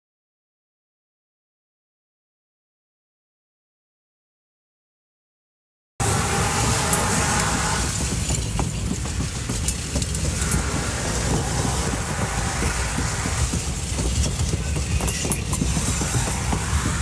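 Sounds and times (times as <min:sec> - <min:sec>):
train rumbling past: 0:06.0 - 0:17.0
wheels clacking over rail joints: 0:06.0 - 0:17.0.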